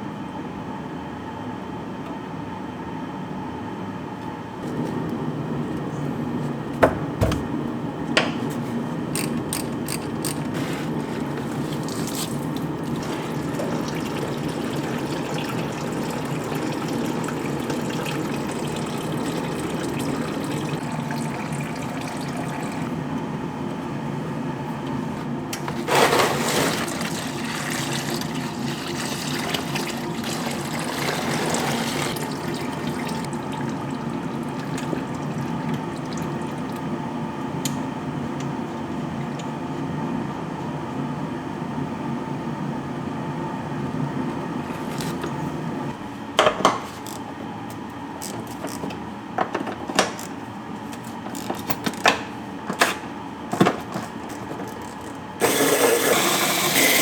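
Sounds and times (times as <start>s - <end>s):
water running and splashing: 11.4s - 22.9s, 25.9s - 36.8s.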